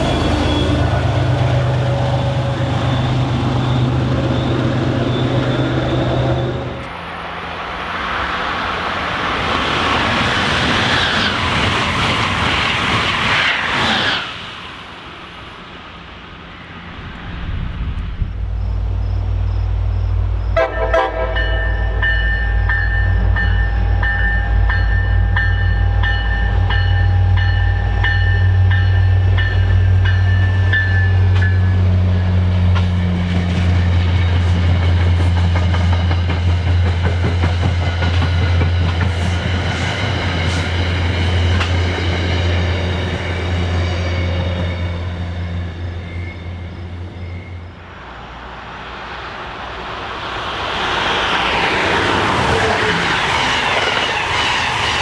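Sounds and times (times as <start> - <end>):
diesel locomotive engine droning: 0.0 - 55.0
train chord horn blast: 20.6 - 22.2
wheels clacking over rail joints: 32.6 - 44.7.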